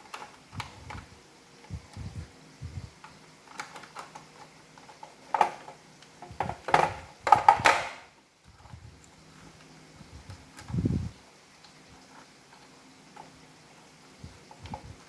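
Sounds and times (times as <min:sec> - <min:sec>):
plastic parts clicking and rattling: 0:03.0 - 0:08.0.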